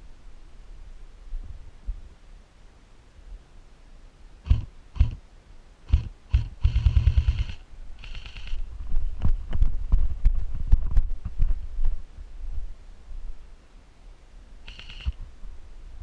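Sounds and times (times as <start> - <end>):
airsoft gun firing: 5.9 - 8.6.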